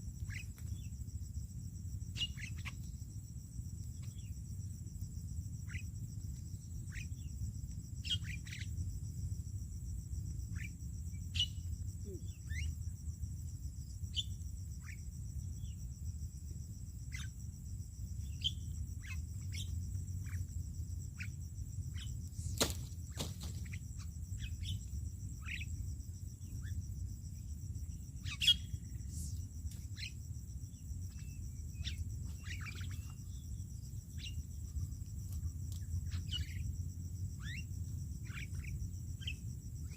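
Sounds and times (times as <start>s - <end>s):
high insect buzz: 0.0s - 39.9s
birds chirping: 27.8s - 34.7s.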